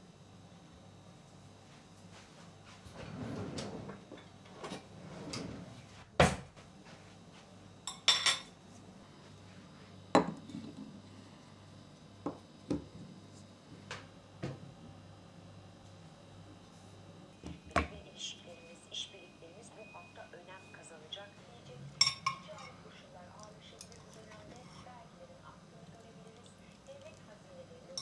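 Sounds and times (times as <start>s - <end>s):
dishes knocking and clinking: 10.2s - 10.7s, 22.0s - 22.7s.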